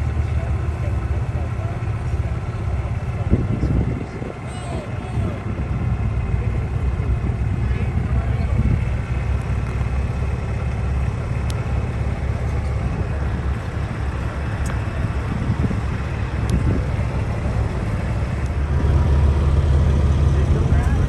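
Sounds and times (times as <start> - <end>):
truck engine rumbling: 0.0 - 21.0.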